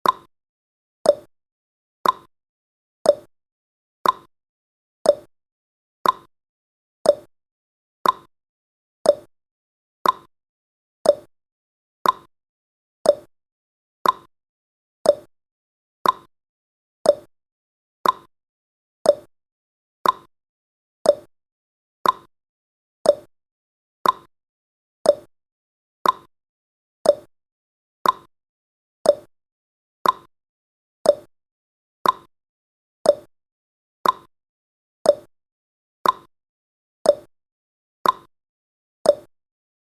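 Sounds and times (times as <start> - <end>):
clock ticking: 2.0 - 2.3, 6.0 - 6.3, 8.0 - 8.3, 10.0 - 10.3, 12.0 - 12.3, 14.0 - 14.3, 15.1 - 15.3, 16.0 - 16.3, 18.0 - 18.3, 20.0 - 20.3, 21.1 - 21.3, 22.0 - 22.3, 24.0 - 24.3, 25.1 - 25.3, 26.0 - 26.3, 27.1 - 27.3, 28.0 - 28.3, 29.1 - 29.3, 30.0 - 30.3, 31.1 - 31.3, 32.0 - 32.3, 34.0 - 34.3, 36.0 - 36.3, 38.0 - 38.3.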